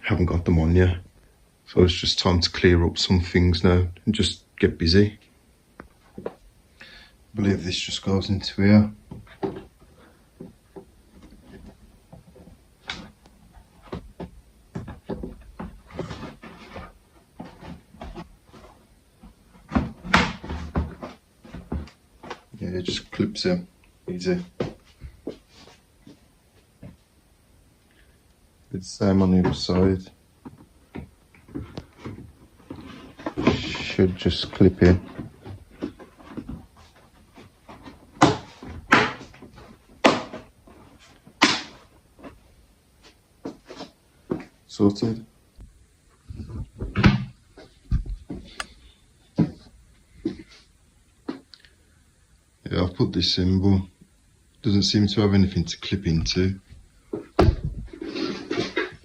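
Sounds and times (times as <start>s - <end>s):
plastic scraping: 57.6s - 59.0s.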